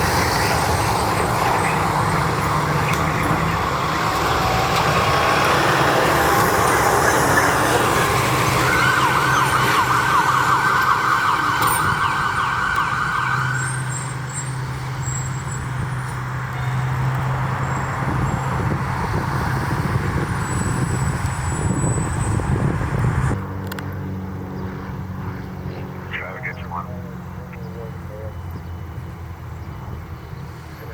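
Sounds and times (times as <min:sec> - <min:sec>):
low engine drone: 0:00.0 - 0:11.5, 0:23.7 - 0:29.2
emergency siren yelping: 0:00.0 - 0:15.8, 0:26.1 - 0:28.5.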